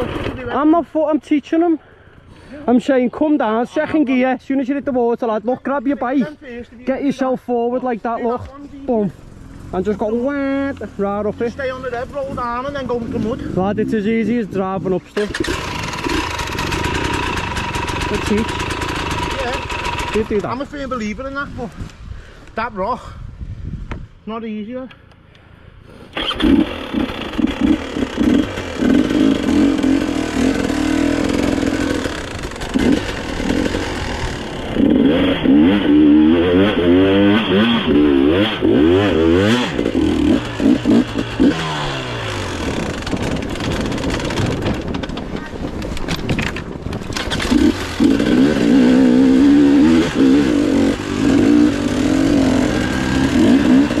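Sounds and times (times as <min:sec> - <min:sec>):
motorcycle engine revving: 0:00.0 - 0:00.6, 0:08.6 - 0:20.9, 0:26.2 - 0:54.0.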